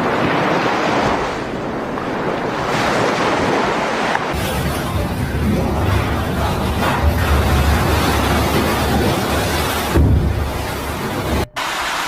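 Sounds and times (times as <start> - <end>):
floodwater rushing: 0.0 - 12.0
low rumble: 4.4 - 11.8.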